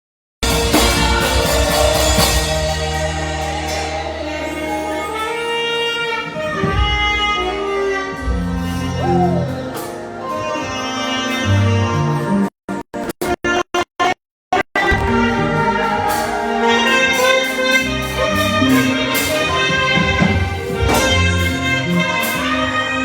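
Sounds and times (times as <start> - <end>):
bending melody note: 0.4 - 12.0, 14.8 - 23.0
live band music: 0.4 - 12.4, 14.8 - 23.0.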